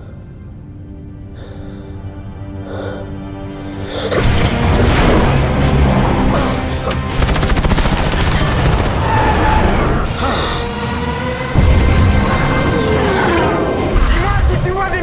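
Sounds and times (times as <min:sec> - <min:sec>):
orchestral score: 0:00.0 - 0:15.0
automatic cannon burst: 0:06.9 - 0:09.1.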